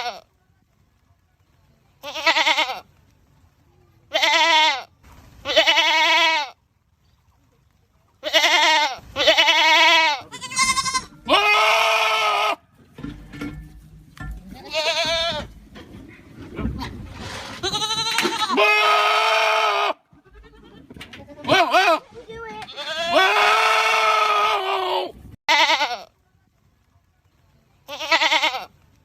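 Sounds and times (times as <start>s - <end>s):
goats bleating: 2.0s - 2.9s, 4.1s - 6.6s, 8.2s - 12.6s, 14.5s - 15.6s, 17.5s - 26.1s, 27.9s - 28.7s.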